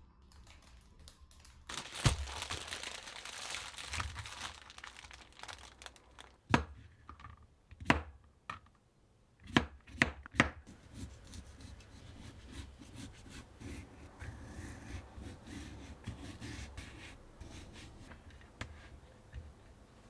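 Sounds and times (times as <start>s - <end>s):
rubbing and scraping food: 1.7s - 6.4s, 10.7s - 19.0s.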